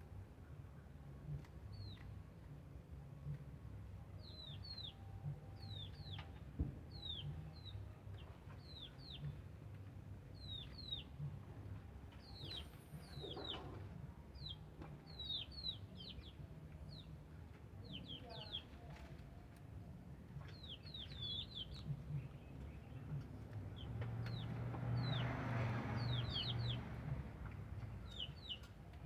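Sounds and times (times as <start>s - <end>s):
small birds chirping: 12.2s - 13.6s, 20.5s - 23.1s, 23.7s - 25.3s, 26.0s - 26.8s, 27.8s - 28.8s.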